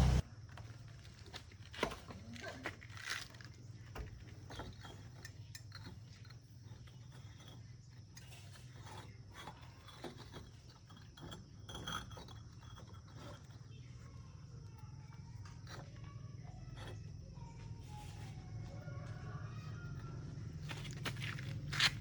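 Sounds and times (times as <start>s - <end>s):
steady low hum: 0.0s - 0.3s.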